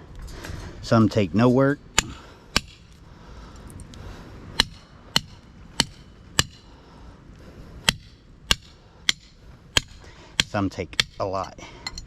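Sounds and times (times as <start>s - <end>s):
hammer striking metal: 2.0s - 2.9s, 4.6s - 6.7s, 7.9s - 12.0s.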